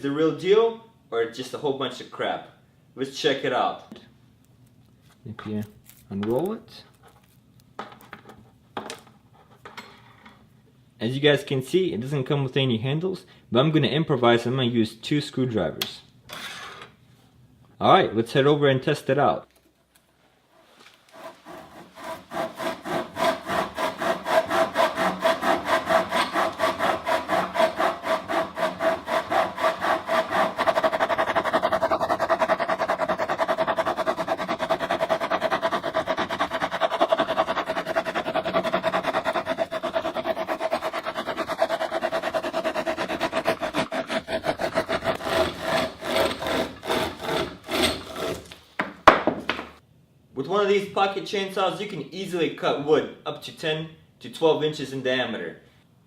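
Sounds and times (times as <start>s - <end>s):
hand chainsaw rasping through wood: 21.1s - 48.5s.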